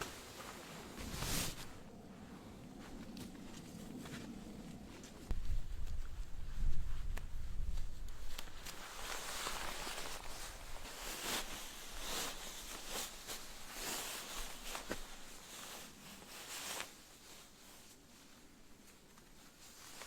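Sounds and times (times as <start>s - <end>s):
footsteps crunching in snow: 0.0s - 17.2s.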